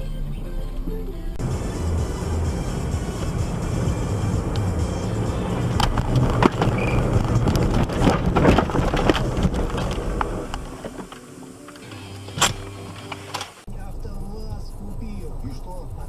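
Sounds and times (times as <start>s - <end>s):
vehicle road rumble: 0.0s - 16.0s
sharp knocks and thuds: 5.7s - 11.0s.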